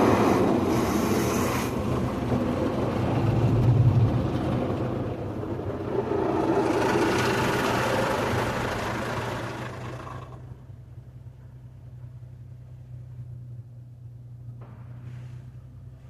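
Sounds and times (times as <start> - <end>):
car wash hissing rush: 0.0 - 10.4
machinery low hum: 0.0 - 16.0.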